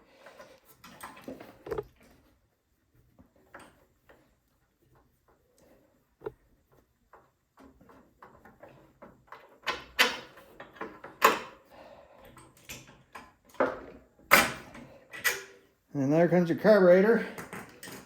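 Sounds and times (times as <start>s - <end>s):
tools clicking and knocking on metal: 7.1s - 11.6s, 12.2s - 15.6s, 17.2s - 18.0s.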